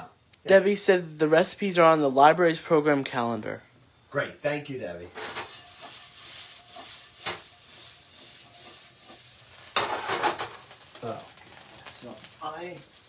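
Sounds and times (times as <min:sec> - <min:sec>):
clicks and scrapes in a pan: 0:05.2 - 0:11.1
potatoes sizzling in a pan: 0:05.2 - 0:13.0.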